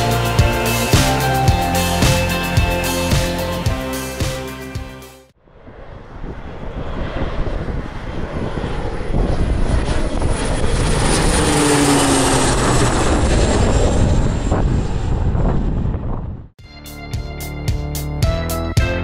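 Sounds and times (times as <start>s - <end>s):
turboprop aircraft passing overhead: 5.4s - 16.6s.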